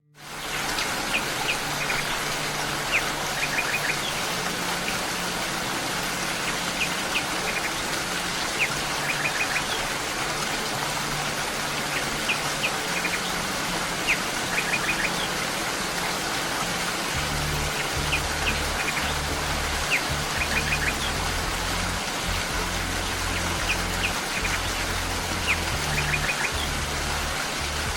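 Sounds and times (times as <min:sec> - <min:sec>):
soft low music: 0:00.1 - 0:27.9
steady rain: 0:00.1 - 0:27.9
deep bass notes: 0:17.2 - 0:27.9.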